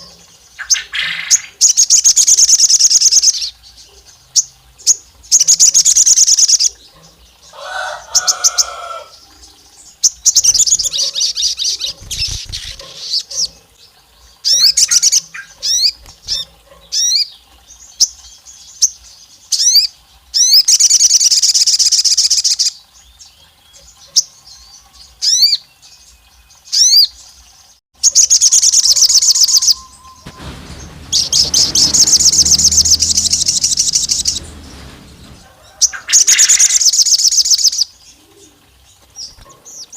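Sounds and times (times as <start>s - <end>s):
rising bird chirps: 28.4s - 35.6s.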